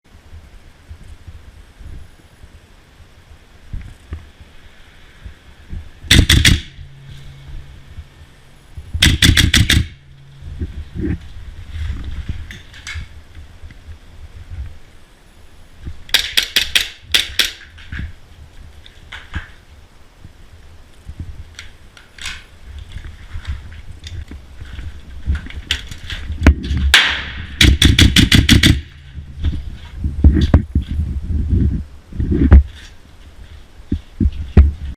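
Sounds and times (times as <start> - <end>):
airsoft gun shots: 6.1 - 6.8, 9.0 - 10.0, 16.1 - 17.6, 26.9 - 28.9.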